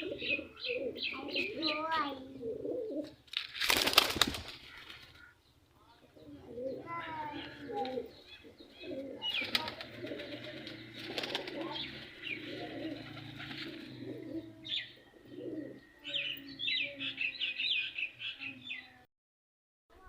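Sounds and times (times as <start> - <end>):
pigeons cooing: 0.0 - 3.2, 6.0 - 18.8
small birds chirping: 0.0 - 19.1.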